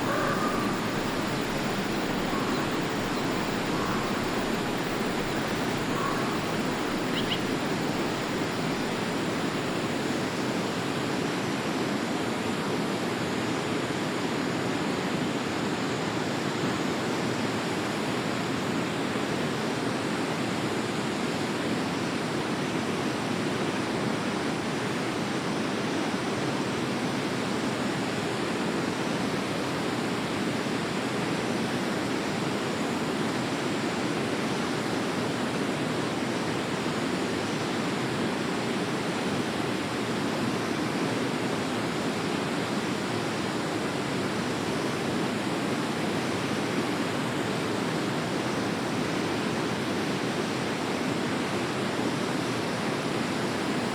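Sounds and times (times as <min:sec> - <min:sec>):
faint high bird chirp: 0:00.0 - 0:09.2
river water rushing: 0:00.0 - 0:11.1.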